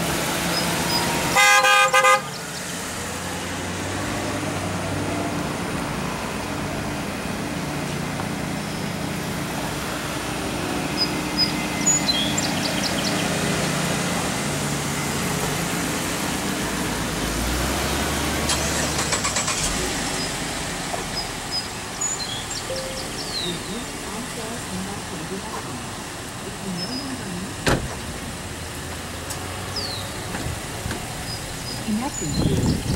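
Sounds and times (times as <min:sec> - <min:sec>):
car engine humming: 0:00.0 - 0:32.9
birds chirping: 0:01.9 - 0:03.2, 0:08.5 - 0:09.2, 0:10.6 - 0:15.4, 0:20.0 - 0:28.2, 0:29.0 - 0:30.3, 0:31.0 - 0:32.9.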